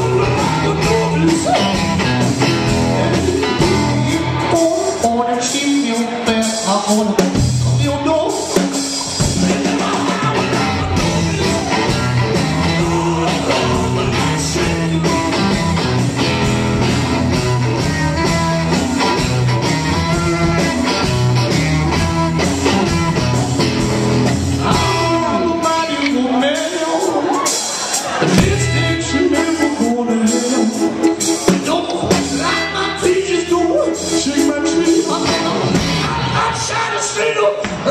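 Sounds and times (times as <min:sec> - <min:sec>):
person singing: 0:00.0 - 0:08.6, 0:09.4 - 0:15.8, 0:24.6 - 0:37.9
live rockabilly band playing: 0:00.0 - 0:37.9.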